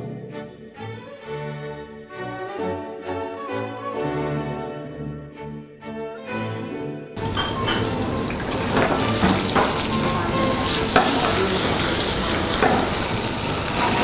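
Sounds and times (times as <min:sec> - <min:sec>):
pan and utensil knocks: 0:07.2 - 0:13.2
vegetables sizzling in oil: 0:07.2 - 0:14.0.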